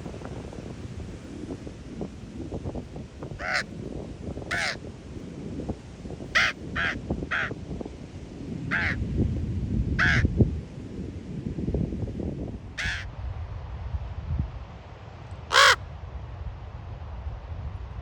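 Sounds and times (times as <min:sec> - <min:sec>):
low wind rumble: 0:00.0 - 0:18.0
raven harsh calls: 0:03.4 - 0:03.7, 0:04.5 - 0:04.8, 0:06.4 - 0:07.5, 0:08.7 - 0:09.0, 0:10.0 - 0:10.2, 0:12.8 - 0:13.1, 0:15.5 - 0:15.8.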